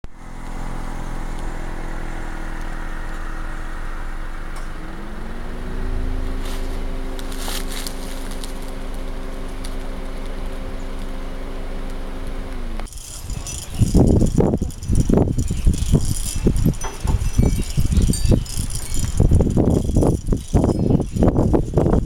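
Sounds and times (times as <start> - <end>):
engine running: 0.0 - 22.0
scraping clicks: 12.8 - 21.8.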